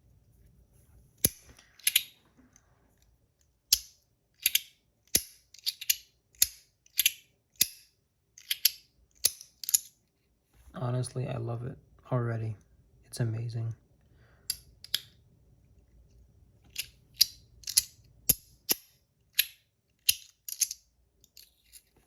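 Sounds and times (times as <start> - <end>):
metal slider fidget clicking: 1.2 - 2.2.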